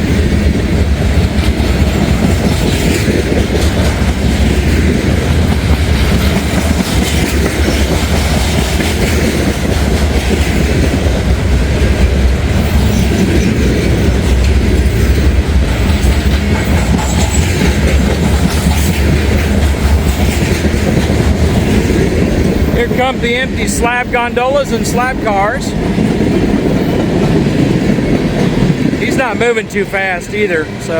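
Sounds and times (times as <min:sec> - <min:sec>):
freight train rumbling: 0:00.0 - 0:30.9
train wheels clicking over rail joints: 0:00.0 - 0:30.9.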